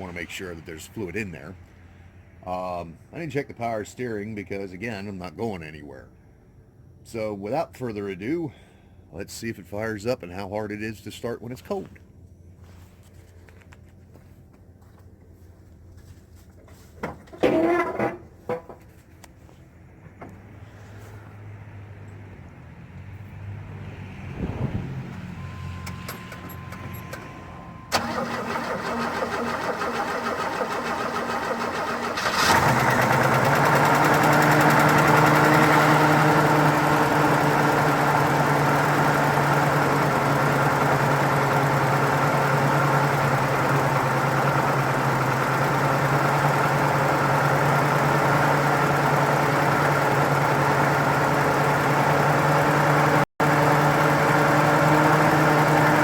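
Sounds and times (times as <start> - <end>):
car engine idling: 25.4 - 56.0
starter motor cranking: 27.9 - 56.0.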